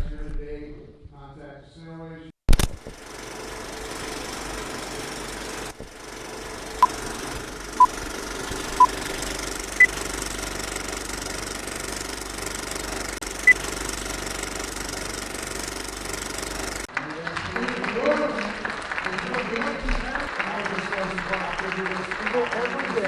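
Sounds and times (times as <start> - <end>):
machine rumble: 2.7 - 16.9.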